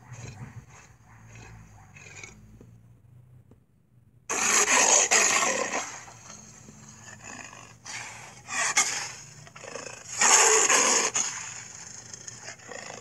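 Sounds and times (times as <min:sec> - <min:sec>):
cartoon dinosaur roars and growls: 0:04.3 - 0:06.0.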